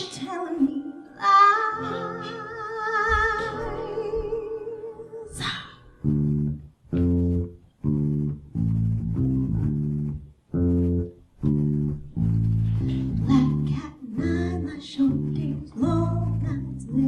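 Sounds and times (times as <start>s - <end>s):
band playing bass-heavy stabs: 6.3s - 13.7s.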